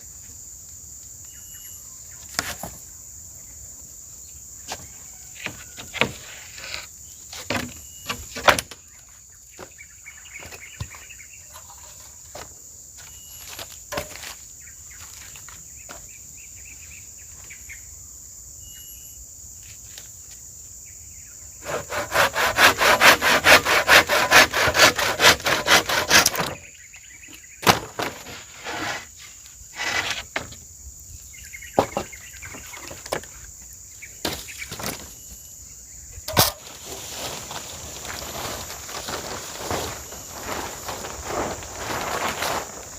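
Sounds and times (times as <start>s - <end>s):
high insect drone: 0.0s - 42.9s
fast strokes on wood: 21.6s - 26.7s.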